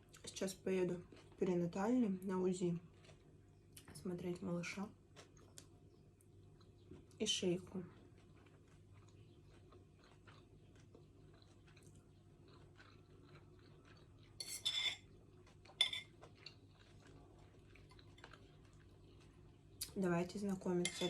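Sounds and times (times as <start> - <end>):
cutlery clinking on plate: 14.4 - 15.1, 15.8 - 16.1.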